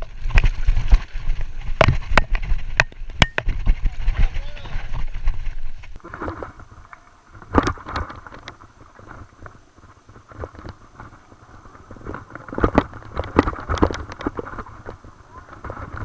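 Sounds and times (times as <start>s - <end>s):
bike tyres on rough ground: 0.0s - 16.0s
bike rattling knocks: 6.0s - 16.0s.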